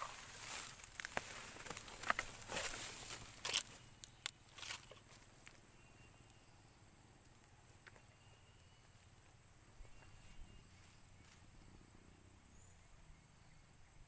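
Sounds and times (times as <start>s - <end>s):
sharp rustles and clicks: 0.0s - 5.1s.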